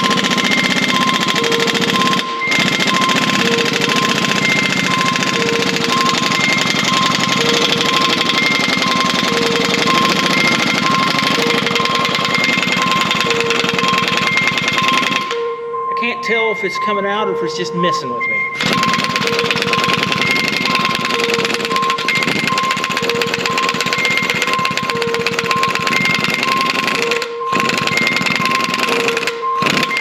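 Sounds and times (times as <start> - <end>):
pneumatic tool hammering: 0.0 - 15.4, 18.5 - 30.0.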